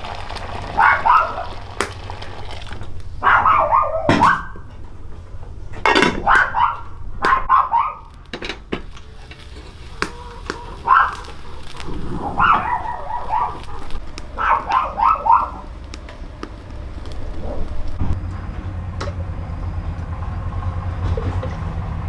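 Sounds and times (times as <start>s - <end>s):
dog barking and yipping: 0.6s - 1.6s, 3.2s - 4.7s, 6.0s - 8.2s, 9.2s - 18.2s.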